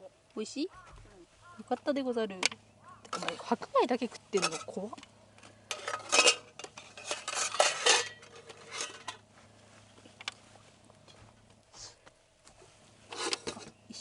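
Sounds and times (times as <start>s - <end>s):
utensil scraping a mess tin: 5.7s - 9.2s.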